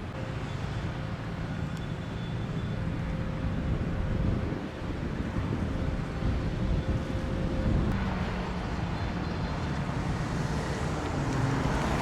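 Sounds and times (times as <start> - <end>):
faint engine hum: 0.0 - 12.0
road traffic rumble: 0.0 - 12.0
wind buffeting microphone: 2.7 - 12.0.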